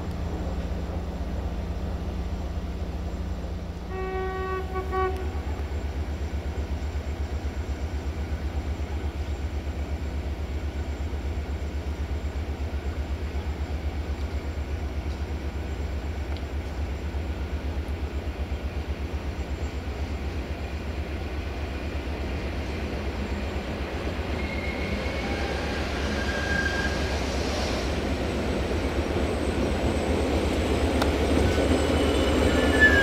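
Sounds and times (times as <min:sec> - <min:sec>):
train horn blast: 0:03.8 - 0:05.6.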